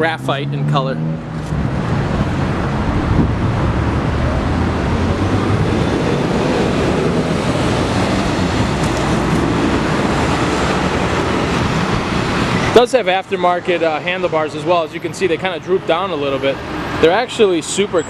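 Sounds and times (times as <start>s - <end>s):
wind on microphone: 1.5s - 12.6s.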